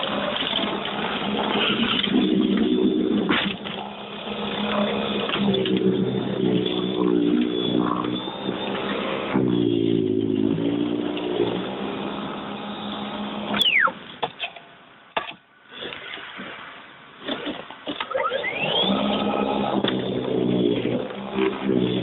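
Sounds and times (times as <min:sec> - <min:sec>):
electric snowblower running: 0:00.0 - 0:09.5, 0:18.1 - 0:22.0.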